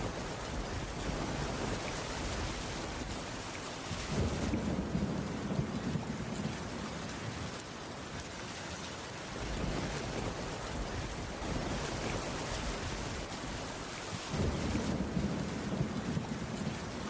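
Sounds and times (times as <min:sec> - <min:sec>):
thunder rumbling: 0:00.0 - 0:07.5, 0:09.3 - 0:17.0
steady rain falling: 0:00.0 - 0:17.0.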